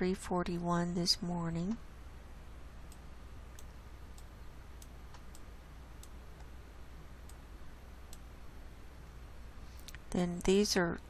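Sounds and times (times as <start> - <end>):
low steady hum: 0.0 - 11.0
computer mouse clicking: 2.9 - 6.5, 8.1 - 8.3.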